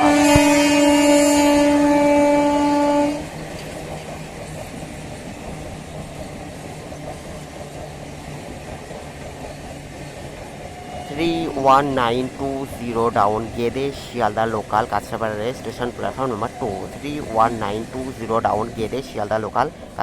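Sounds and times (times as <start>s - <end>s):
train horn blast: 0.0s - 3.4s, 10.6s - 12.7s
train rumble: 0.0s - 20.0s.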